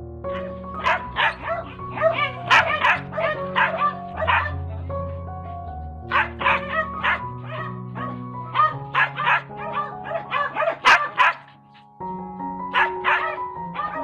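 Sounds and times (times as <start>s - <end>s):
background music of held notes: 0.0s - 14.0s
dog yipping and barking: 0.3s - 4.6s, 6.1s - 11.6s, 12.7s - 14.0s.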